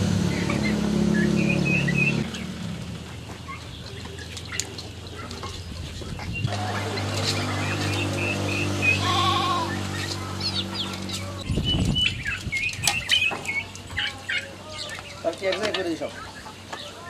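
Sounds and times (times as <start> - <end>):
bird chirping: 0.2 - 17.0
goat bleating: 9.0 - 9.8.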